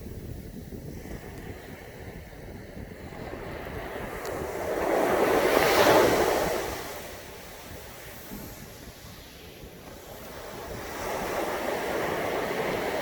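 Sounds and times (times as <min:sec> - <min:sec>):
low rumble of surf: 0:00.0 - 0:13.0
wind on microphone: 0:00.0 - 0:13.0
sea wave breaking on beach: 0:04.4 - 0:13.0.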